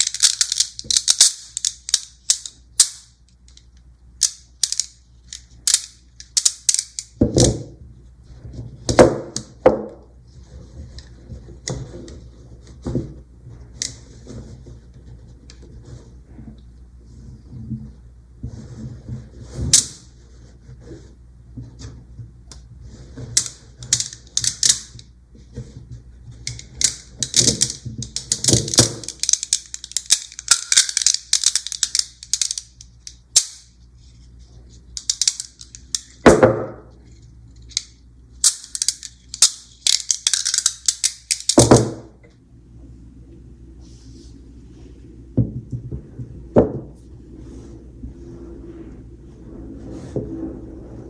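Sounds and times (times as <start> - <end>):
magnet balls clicking: 0.0 - 7.2, 23.4 - 25.1, 26.3 - 33.8, 34.9 - 36.2, 37.6 - 41.8.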